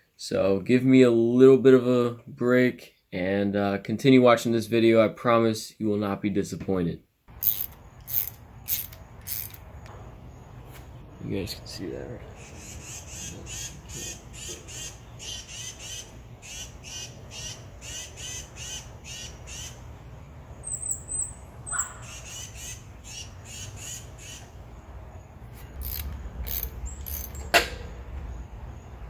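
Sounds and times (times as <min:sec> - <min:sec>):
bird squawking: 0:12.3 - 0:19.8, 0:20.7 - 0:24.6
high bird chirps: 0:20.6 - 0:24.6, 0:25.7 - 0:27.5.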